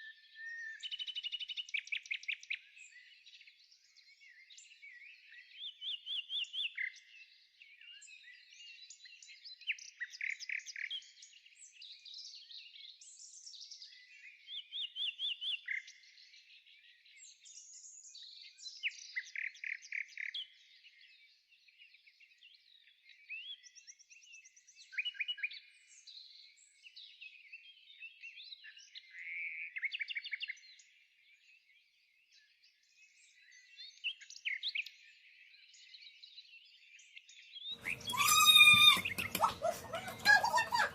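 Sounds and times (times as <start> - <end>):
birds chirping and trilling: 37.7 - 40.9.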